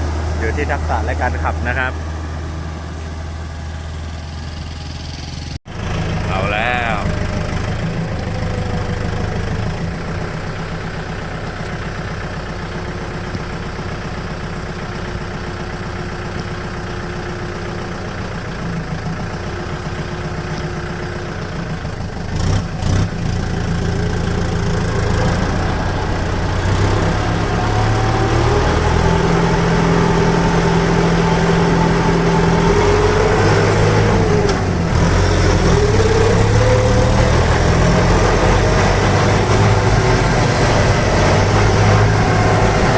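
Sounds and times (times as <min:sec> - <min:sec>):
engine whine: 0:00.0 - 0:42.9
truck diesel engine running: 0:00.0 - 0:42.9.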